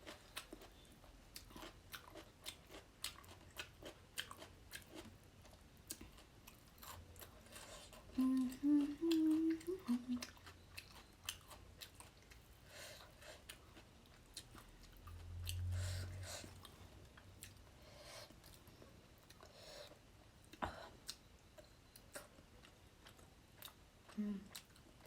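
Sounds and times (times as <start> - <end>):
close chewing and mouth clicks: 0.0 - 25.0
person humming: 8.1 - 10.3, 24.2 - 24.5.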